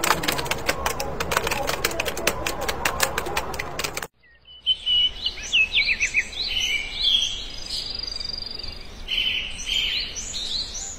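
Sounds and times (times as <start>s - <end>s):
small songbirds chirping: 4.1s - 10.9s.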